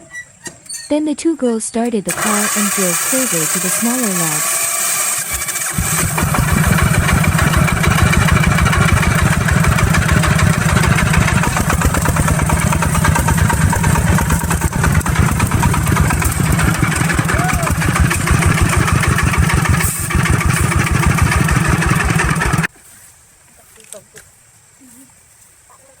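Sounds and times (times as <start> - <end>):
small truck engine running: 2.0 - 22.7.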